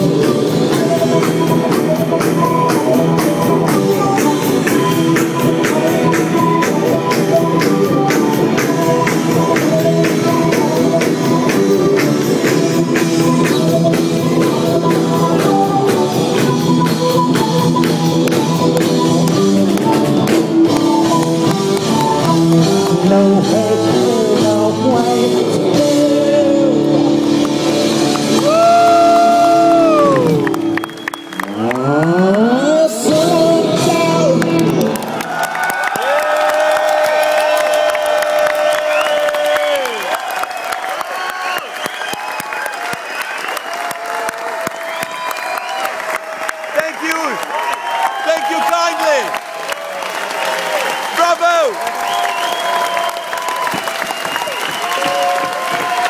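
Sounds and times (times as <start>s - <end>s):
live rock band playing: 0.0s - 35.5s.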